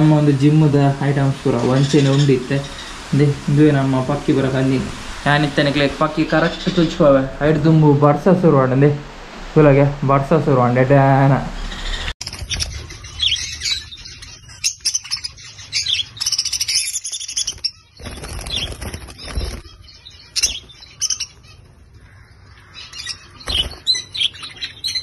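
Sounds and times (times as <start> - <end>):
budgerigars chirping and chattering: 0.0 - 8.2, 11.1 - 25.0
wing flapping: 17.3 - 21.4, 23.4 - 24.0.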